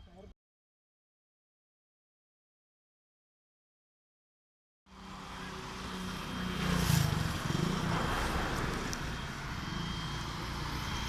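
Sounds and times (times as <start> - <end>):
jet engines running: 4.9 - 11.0.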